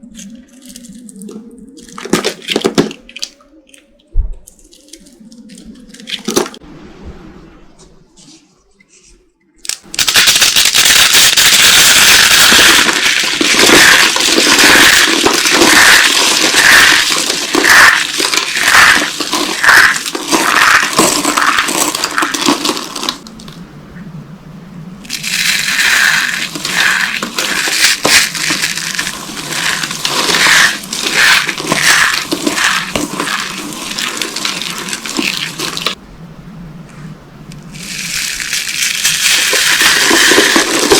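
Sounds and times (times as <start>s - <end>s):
dry soap crunching: 9.7s - 23.3s, 25.1s - 36.0s, 37.8s - 40.9s.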